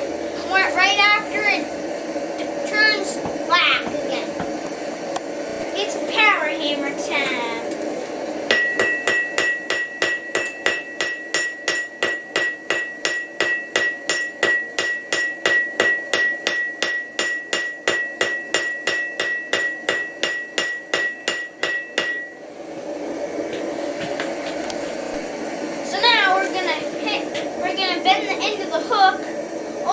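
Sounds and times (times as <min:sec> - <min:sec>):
power hammer striking metal: 0:08.5 - 0:22.4.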